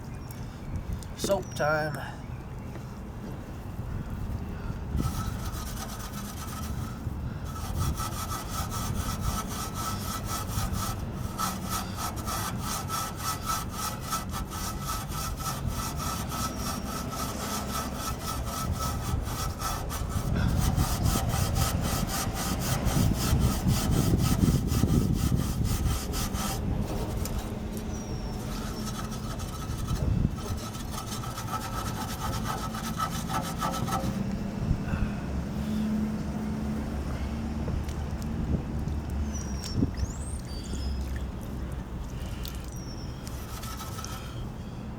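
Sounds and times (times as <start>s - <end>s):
soapy scrubbing of metal: 5.0s - 34.2s, 42.8s - 44.3s.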